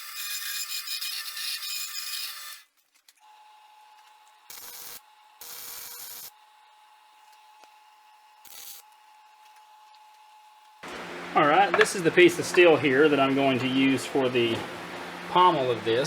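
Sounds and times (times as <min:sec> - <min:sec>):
saw cutting wood: 0:00.0 - 0:02.7.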